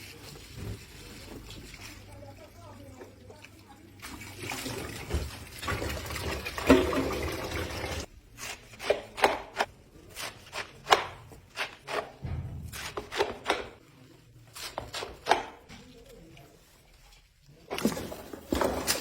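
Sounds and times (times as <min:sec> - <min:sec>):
water running: 0:00.0 - 0:08.1.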